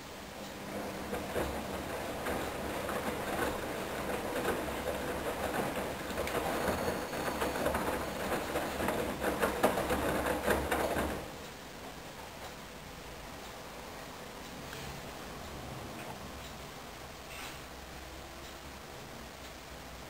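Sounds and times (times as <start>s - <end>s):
washing machine motor hum: 0.0s - 14.0s.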